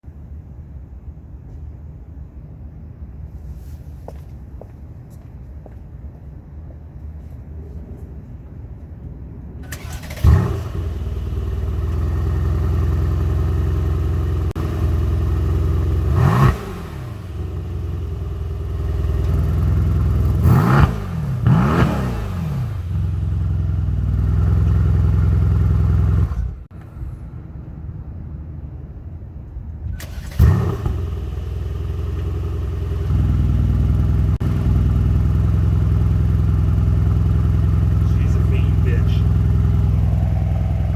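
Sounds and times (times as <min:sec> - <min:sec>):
car engine idling: 0:09.6 - 0:26.7, 0:30.0 - 0:40.9
car engine starting and revving: 0:09.6 - 0:26.7, 0:29.9 - 0:40.9.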